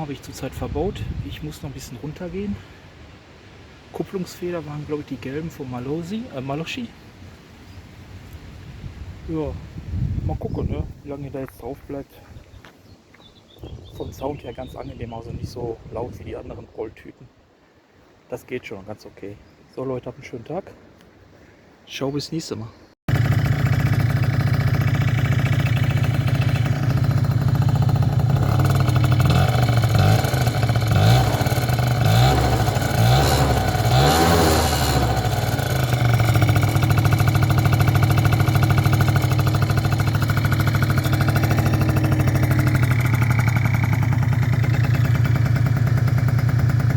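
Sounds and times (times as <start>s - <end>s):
scooter engine idling and revving: 23.1s - 46.9s.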